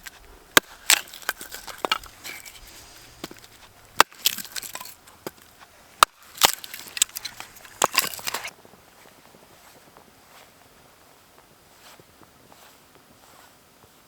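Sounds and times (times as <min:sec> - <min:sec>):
firewood being chopped: 0:00.0 - 0:08.5.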